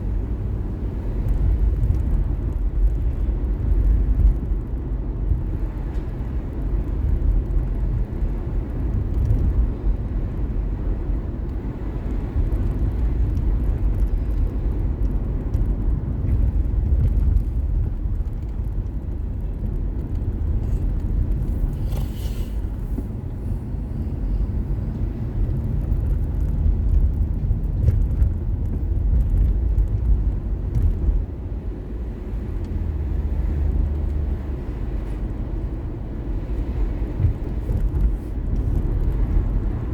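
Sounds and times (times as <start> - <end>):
car driving rumble: 0.0 - 39.9
brief hiss: 21.8 - 22.6.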